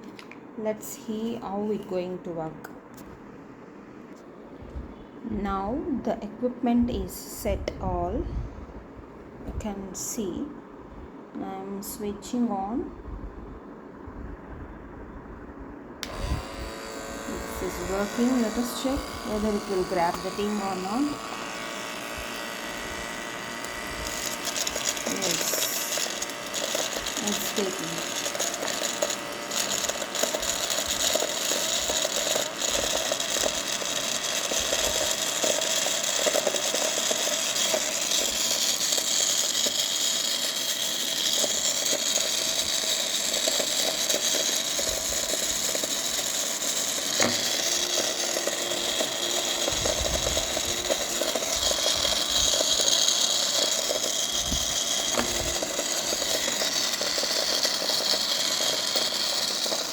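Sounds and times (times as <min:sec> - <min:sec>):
small vacuum cleaner whirring: 0:16.0 - 0:59.9.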